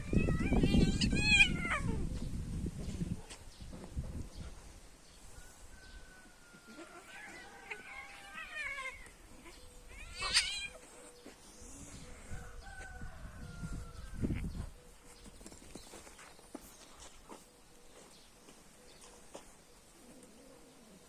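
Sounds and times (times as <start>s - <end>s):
cat meowing and yowling: 0.0s - 2.1s, 6.7s - 10.9s.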